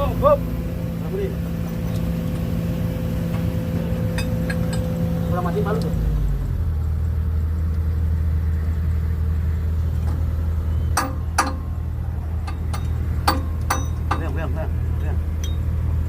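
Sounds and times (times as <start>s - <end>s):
diesel engine running: 0.0s - 16.0s
sharp metallic knocks: 3.3s - 5.1s, 10.9s - 15.8s.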